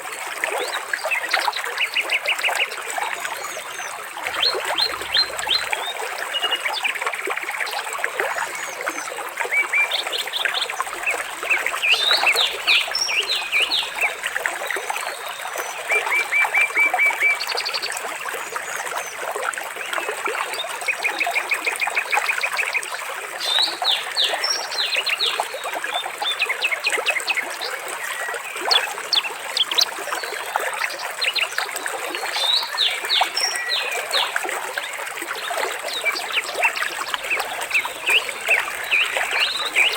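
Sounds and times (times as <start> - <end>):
trickle of running water: 0.0 - 39.9
birds chirping and trilling: 3.6 - 6.5, 10.2 - 14.8, 28.6 - 30.0, 35.4 - 39.9.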